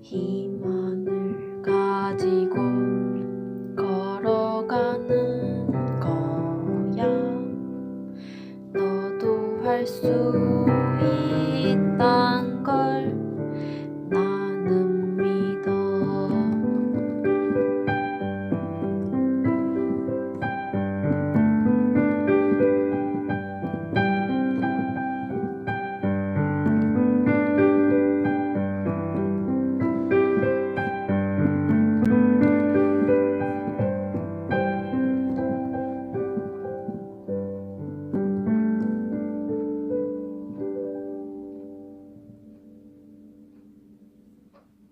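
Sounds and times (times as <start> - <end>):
gentle piano music: 0.0 - 44.9.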